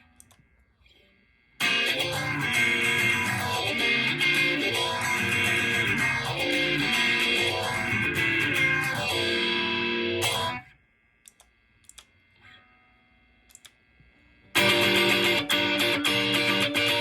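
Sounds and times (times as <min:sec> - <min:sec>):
electric guitar through effects: 0:01.6 - 0:10.7, 0:14.6 - 0:17.0.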